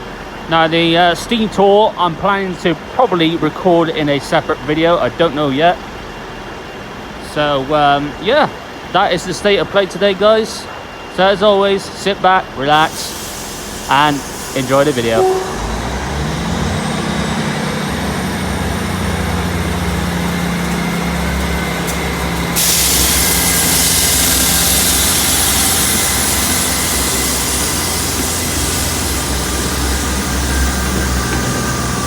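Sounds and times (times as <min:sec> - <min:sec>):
diesel train engines running: 0:00.0 - 0:32.0
loud steady hiss: 0:12.6 - 0:17.9, 0:18.9 - 0:32.0.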